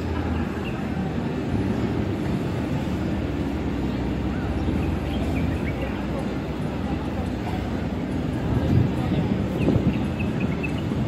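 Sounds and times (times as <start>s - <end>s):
faint voices: 0.0s - 11.0s
sports car engines running: 0.0s - 11.0s.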